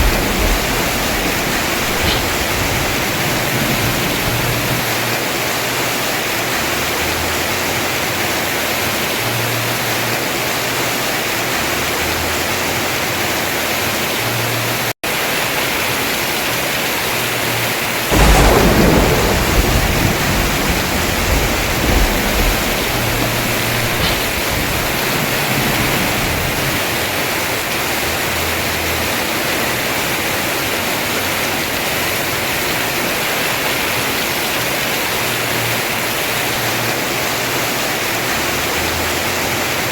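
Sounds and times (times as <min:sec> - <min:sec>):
thunder rumbling: 0:00.0 - 0:05.9, 0:18.1 - 0:34.7
heavy rain on a roof: 0:00.0 - 0:39.9.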